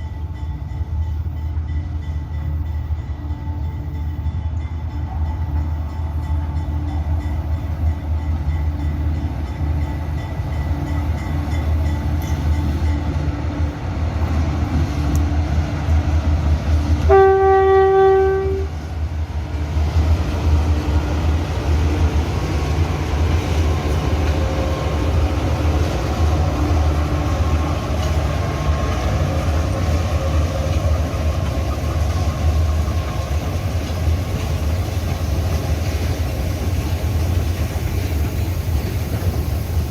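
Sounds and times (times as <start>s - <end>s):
diesel locomotive engine rumble: 0.0s - 39.9s
locomotive horn blast: 17.0s - 18.8s.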